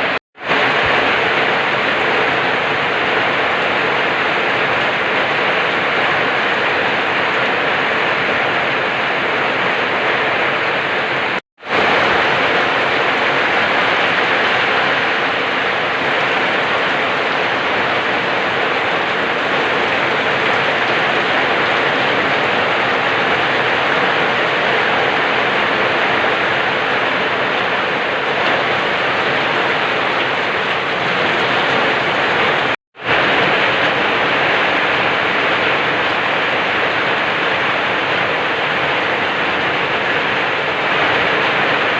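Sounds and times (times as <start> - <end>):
steady rainfall hiss: 0.0 - 41.9.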